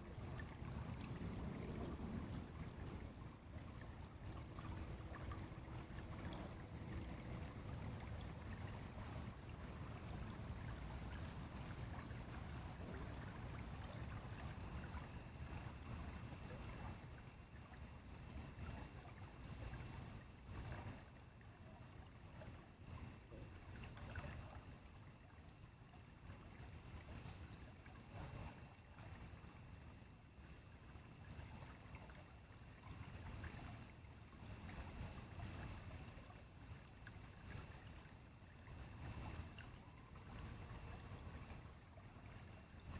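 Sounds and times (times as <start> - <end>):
stream flowing: 0.1 - 21.4
faint high hiss: 6.1 - 20.2.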